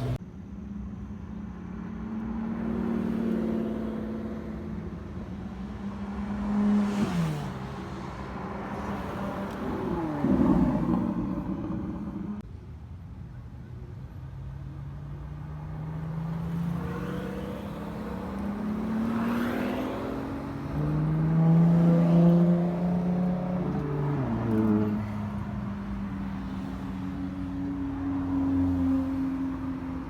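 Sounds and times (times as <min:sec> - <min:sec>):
car engine accelerating: 0:02.2 - 0:12.4, 0:14.8 - 0:27.1.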